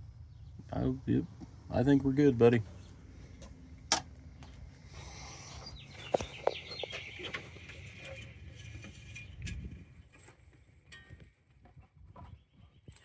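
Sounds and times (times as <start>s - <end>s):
birds chirping: 0.2s - 9.5s.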